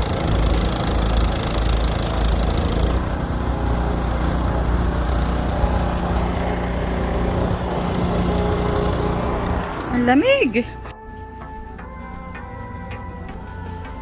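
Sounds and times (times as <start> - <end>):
snowblower engine running: 0.0 - 10.9.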